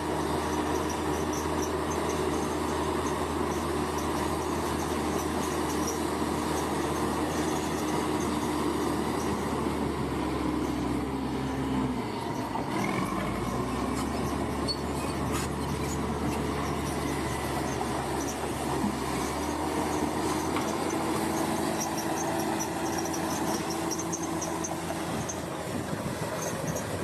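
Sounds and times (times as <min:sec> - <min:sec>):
crawler tracks working: 0:00.0 - 0:27.0
diesel engine running: 0:00.0 - 0:27.0.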